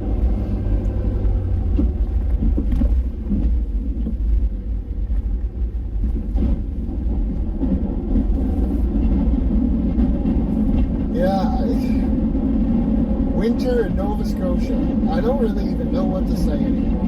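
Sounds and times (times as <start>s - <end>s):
truck engine rumble: 0.0s - 17.0s.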